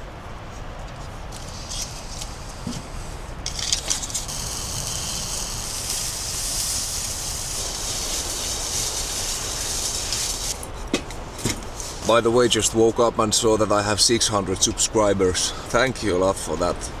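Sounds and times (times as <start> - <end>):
fire crackling: 1.1 - 12.7
stove fire hissing: 1.2 - 12.8.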